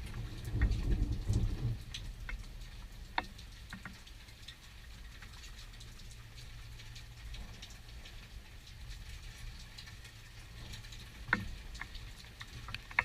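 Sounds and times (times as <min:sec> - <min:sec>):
low thunder rumble: 0:00.0 - 0:03.0
faint steady rain hiss: 0:00.0 - 0:13.0
raindrops pattering: 0:00.0 - 0:13.0.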